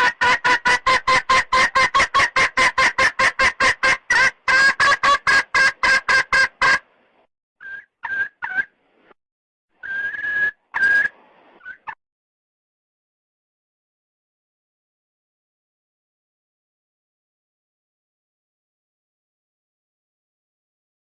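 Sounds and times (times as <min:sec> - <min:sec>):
hen clucking: 0:00.0 - 0:06.8, 0:07.6 - 0:08.7, 0:09.8 - 0:12.0
hen calls: 0:07.6 - 0:08.7, 0:09.8 - 0:12.0.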